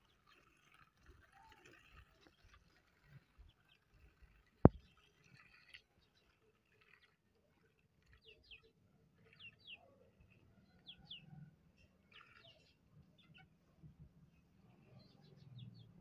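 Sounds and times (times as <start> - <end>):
faint bird chirps: 3.4 - 13.6.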